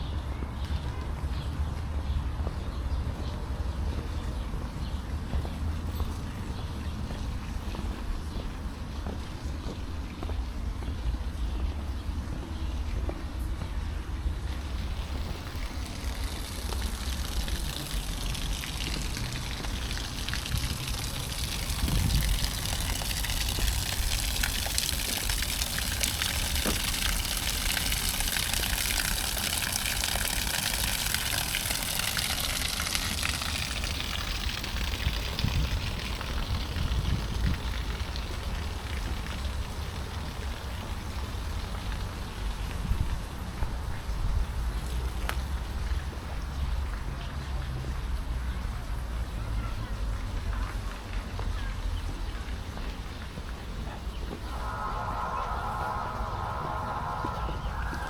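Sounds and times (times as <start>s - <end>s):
water splashing and spraying: 14.6s - 42.7s
low rumble: 54.4s - 58.0s.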